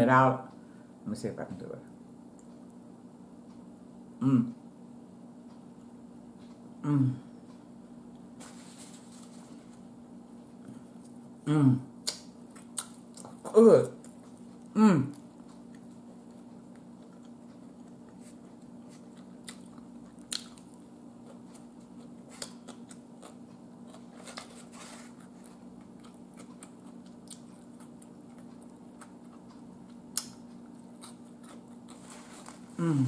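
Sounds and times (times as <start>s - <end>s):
steady low hum: 0.0s - 33.0s
quiet chewing: 12.0s - 33.0s.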